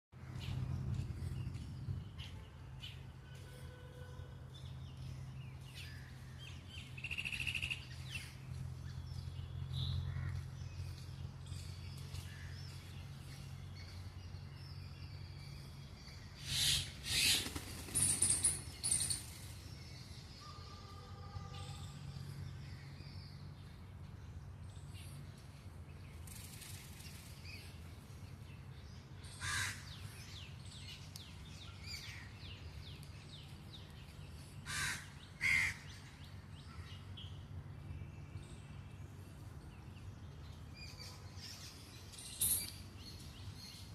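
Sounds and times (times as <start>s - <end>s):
loud harsh bird calls: 16.4s - 19.3s, 29.3s - 30.2s, 34.6s - 36.1s.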